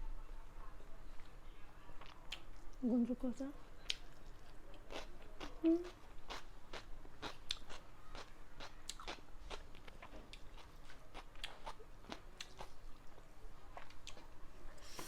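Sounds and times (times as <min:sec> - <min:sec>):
person chewing crunchy food: 0:03.8 - 0:14.3.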